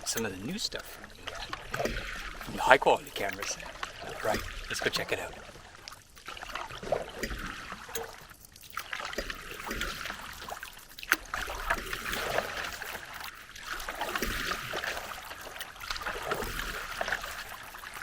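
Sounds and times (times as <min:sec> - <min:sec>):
paddle strokes through water: 0:00.0 - 0:18.0
water dripping off paddle: 0:00.0 - 0:18.0.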